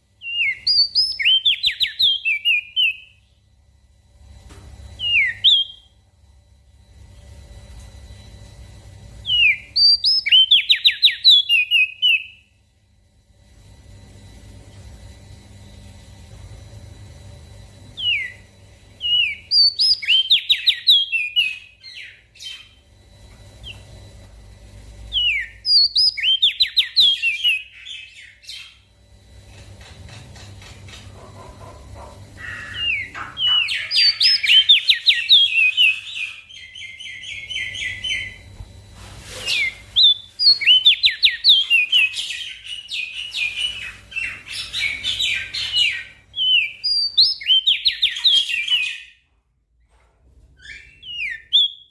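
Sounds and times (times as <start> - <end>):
faint low hum: 0.0 - 51.9
bird high chirping song: 0.2 - 3.4, 5.0 - 6.0, 9.2 - 12.5, 18.0 - 22.9, 25.1 - 28.9, 32.4 - 38.5, 39.5 - 49.2, 50.6 - 51.9.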